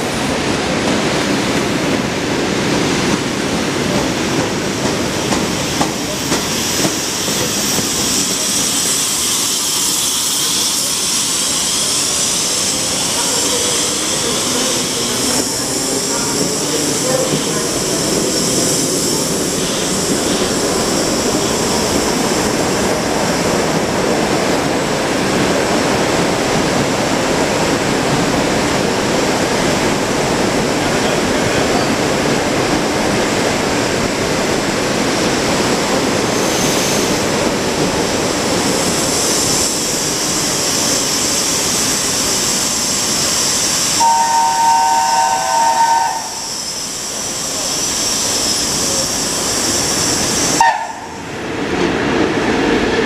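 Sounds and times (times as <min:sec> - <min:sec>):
electric train rumble with hiss: 0:00.0 - 0:53.0
locomotive horn chord: 0:44.0 - 0:46.4, 0:50.6 - 0:51.1.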